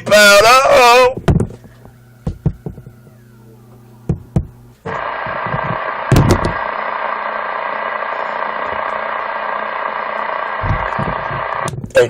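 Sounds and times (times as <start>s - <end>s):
faint low hum: 0.0s - 6.8s
radio static hiss: 4.8s - 12.0s
thump: 5.5s - 6.6s.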